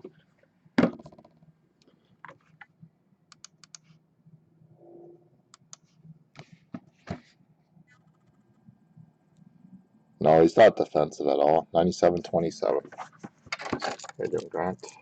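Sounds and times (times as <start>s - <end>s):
sharp clicks: 3.3s - 3.8s.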